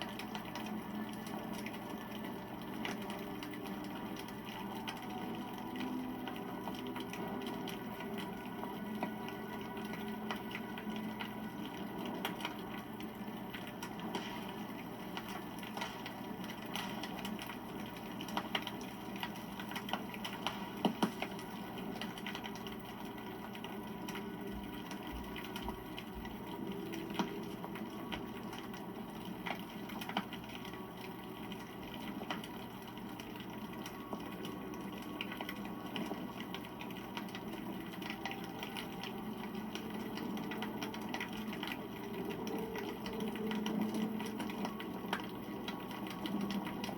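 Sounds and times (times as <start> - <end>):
campfire crackling: 0.0 - 46.9
fire pops: 13.6 - 22.6.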